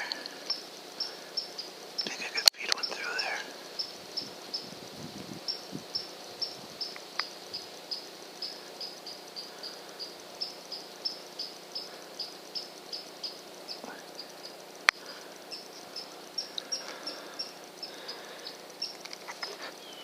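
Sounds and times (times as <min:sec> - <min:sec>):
cricket chirping: 0:00.0 - 0:20.0
faint click: 0:00.1 - 0:00.6.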